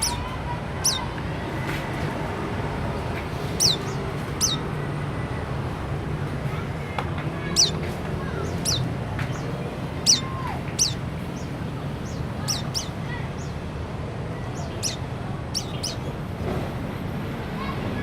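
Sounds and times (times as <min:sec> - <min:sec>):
bird high chirps: 0:00.0 - 0:01.1, 0:03.5 - 0:04.7, 0:07.5 - 0:07.8, 0:08.4 - 0:13.6, 0:14.6 - 0:16.2.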